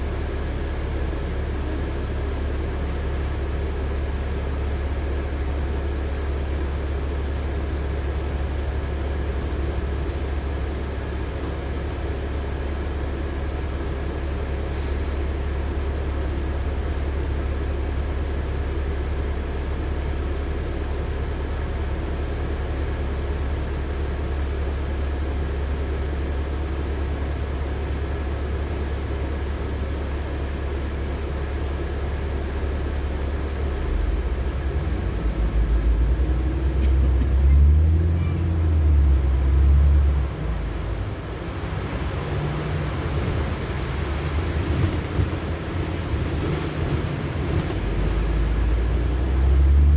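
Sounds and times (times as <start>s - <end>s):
bus engine idling: 0.0s - 49.9s.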